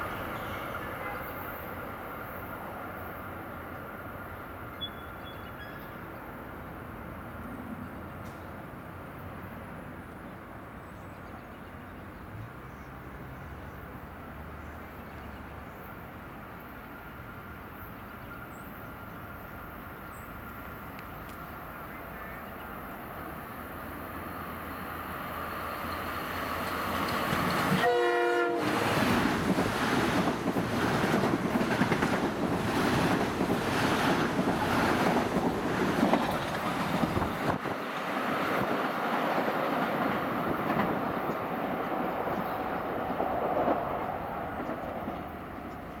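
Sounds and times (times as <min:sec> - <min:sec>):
train passing: 0:00.0 - 0:11.0, 0:11.8 - 0:46.0
train horn blast: 0:00.4 - 0:01.7, 0:27.7 - 0:28.9
wheels clacking over rail joints: 0:26.4 - 0:27.9, 0:28.6 - 0:43.9.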